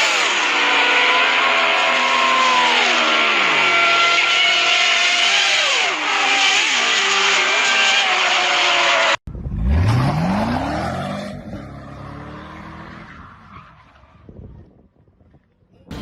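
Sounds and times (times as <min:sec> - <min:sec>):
road and wind noise: 0:09.3 - 0:16.0.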